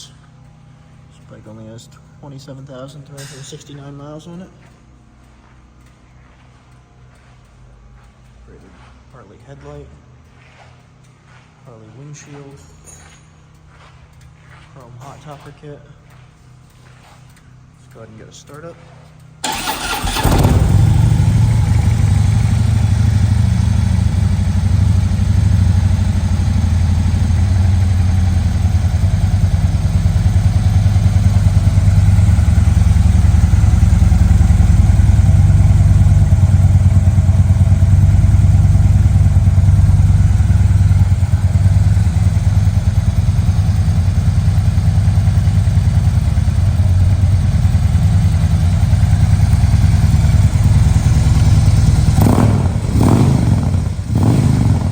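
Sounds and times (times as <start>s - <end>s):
motorcycle engine idling: 19.4s - 54.9s.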